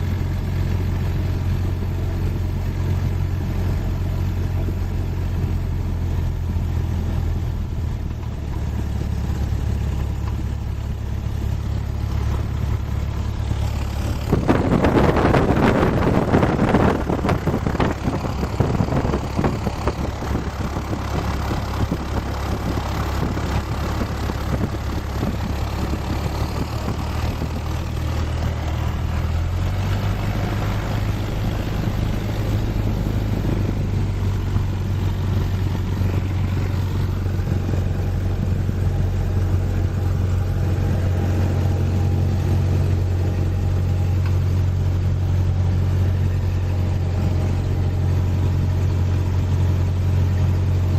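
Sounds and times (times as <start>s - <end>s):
small plane piston engine running: 0.0s - 50.9s
rushing noise: 12.1s - 38.8s.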